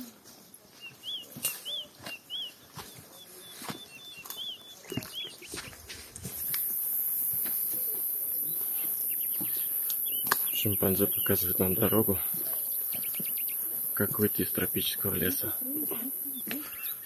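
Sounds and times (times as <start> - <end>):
footsteps on leaf litter: 0.2 - 10.8
bird chirping: 0.6 - 17.0.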